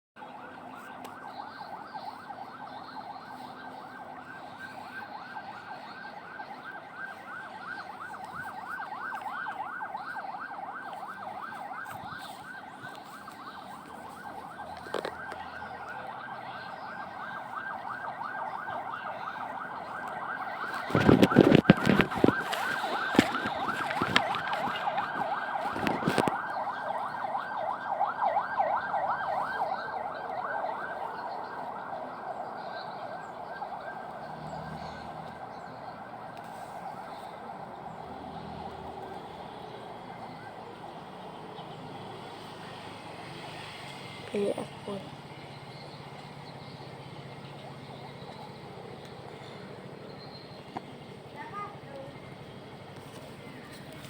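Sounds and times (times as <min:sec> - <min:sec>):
siren yelping: 0:00.2 - 0:41.1.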